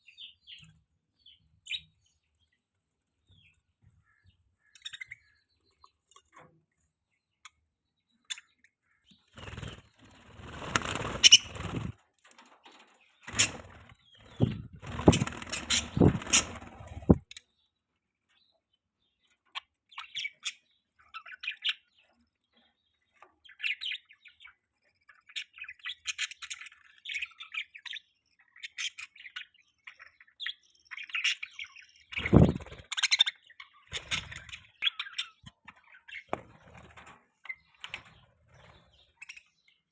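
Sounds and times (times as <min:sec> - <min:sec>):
budgerigar chirping: 0:11.2 - 0:11.8.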